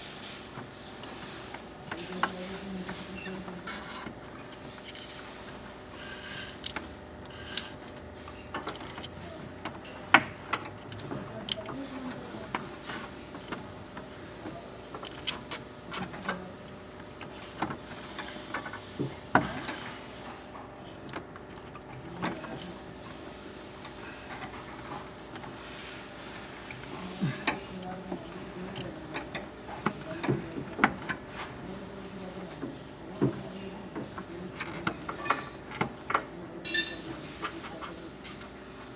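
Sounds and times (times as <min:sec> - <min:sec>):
steady background hum: 0:00.0 - 0:38.9
hand tools clanking on metal: 0:36.6 - 0:37.1.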